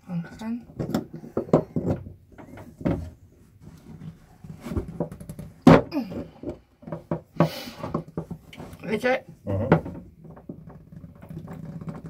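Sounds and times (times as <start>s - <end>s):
tools knocking on plumbing fitting: 0.8s - 3.0s.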